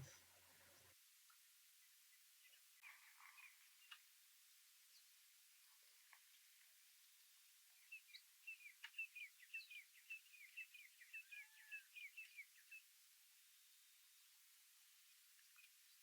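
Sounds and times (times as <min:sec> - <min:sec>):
faint bird twittering: 0:07.8 - 0:12.8.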